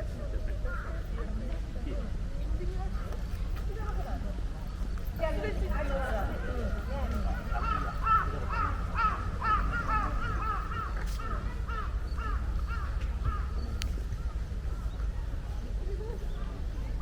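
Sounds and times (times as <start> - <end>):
low outdoor rumble: 0.0 - 17.0
bird calling: 7.2 - 15.0.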